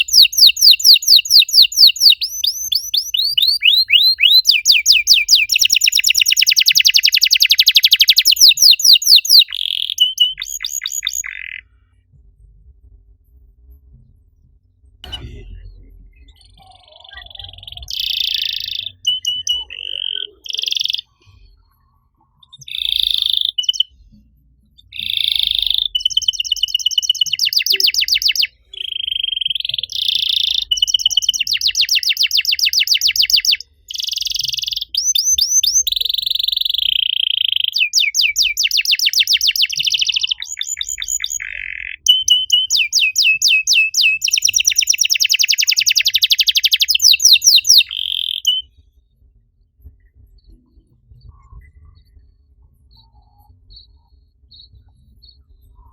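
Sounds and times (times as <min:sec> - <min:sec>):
canary singing trills: 0:00.0 - 0:11.7, 0:16.2 - 0:24.0, 0:24.8 - 0:48.7.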